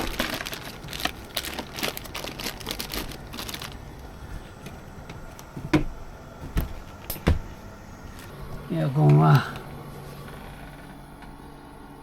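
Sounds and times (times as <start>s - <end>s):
rustling and crinkling: 0.0s - 11.0s
dull knock: 5.6s - 7.6s.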